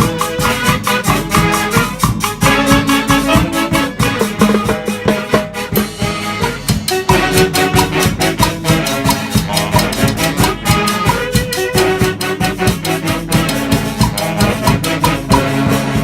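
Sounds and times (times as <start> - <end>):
salsa dance band music: 0.0 - 16.0.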